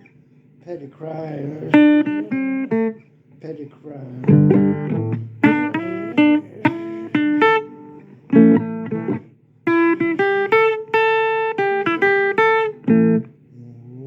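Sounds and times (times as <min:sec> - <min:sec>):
blues guitar plucking and strumming: 0:01.1 - 0:14.0
person singing: 0:01.2 - 0:03.0, 0:03.9 - 0:08.4.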